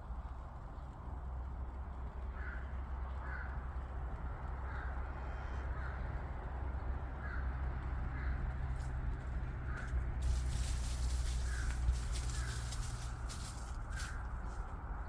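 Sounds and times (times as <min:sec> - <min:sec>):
bird calling: 0:09.8 - 0:14.3.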